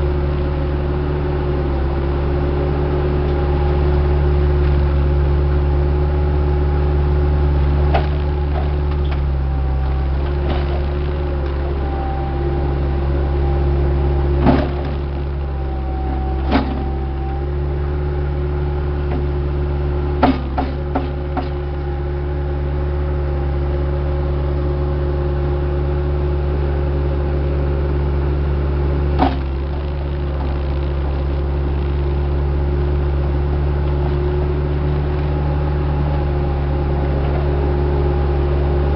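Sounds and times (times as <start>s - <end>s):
diesel engine running: 0.0s - 38.9s
sharp knocks and clanks: 20.2s - 21.7s.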